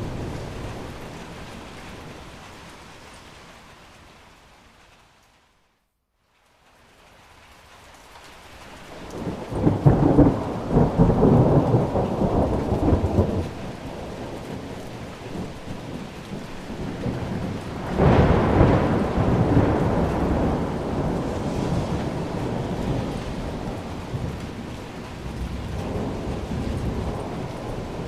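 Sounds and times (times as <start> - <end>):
thunder rumbling: 0.0 - 2.4, 8.9 - 28.0
steady rain: 0.0 - 28.0.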